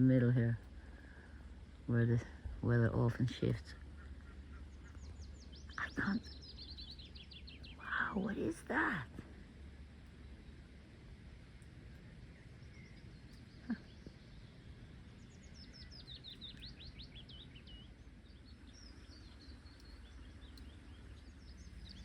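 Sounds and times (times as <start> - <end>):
faint low drone: 0.0 - 22.0
small bird singing: 2.8 - 22.0.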